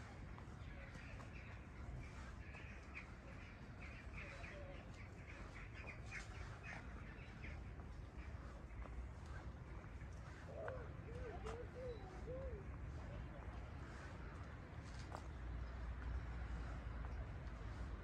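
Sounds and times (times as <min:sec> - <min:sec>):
birds calling: 0:00.6 - 0:13.0.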